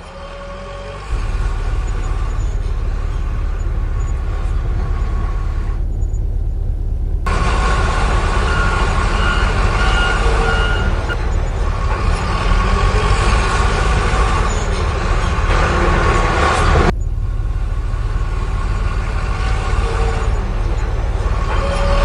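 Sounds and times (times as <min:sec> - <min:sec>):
higher grinding layer: 0:00.0 - 0:17.0, 0:18.1 - 0:22.0
construction vehicle engine rumble: 0:00.0 - 0:22.0
steady tones: 0:01.0 - 0:22.0.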